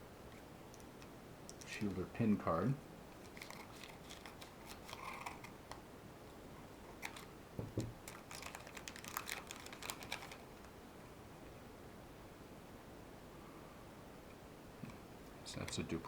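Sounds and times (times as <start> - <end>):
faint room hiss: 0.0 - 16.0
soft thump: 7.6 - 7.9.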